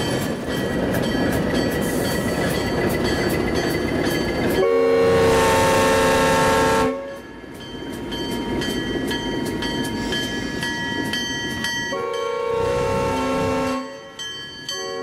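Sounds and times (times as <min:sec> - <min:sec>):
passing rail cars rumbling: 0:00.0 - 0:15.0
locomotive air horn: 0:04.6 - 0:07.2, 0:11.9 - 0:14.0.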